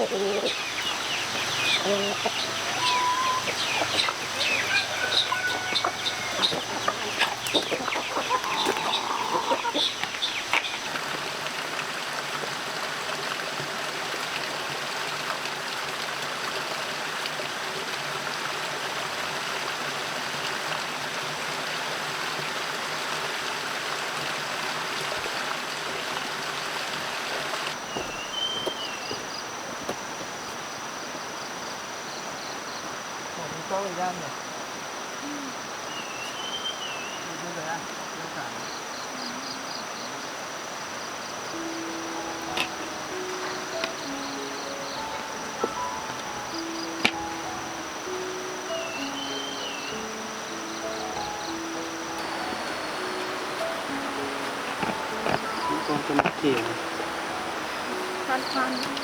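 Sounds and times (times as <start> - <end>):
chickens clucking: 0.0 - 11.2, 41.4 - 59.0
birds calling: 0.0 - 11.6, 25.0 - 29.7, 35.2 - 59.0
steady background hiss: 0.0 - 59.0.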